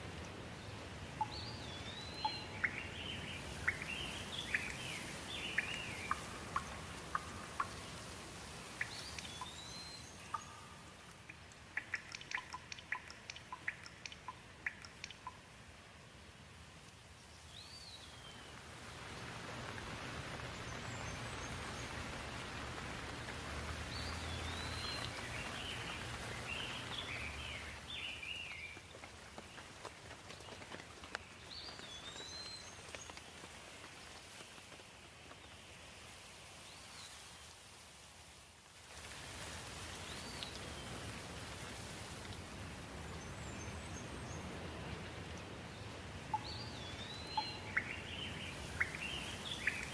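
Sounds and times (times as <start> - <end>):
birds chirping: 0.5 - 8.1, 8.7 - 15.4, 17.5 - 29.7, 43.0 - 49.9.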